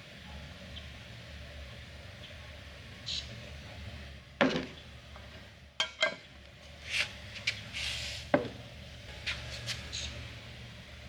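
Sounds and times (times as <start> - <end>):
steady low hum: 0.0 - 11.0
short scraping rubs: 6.8 - 8.3.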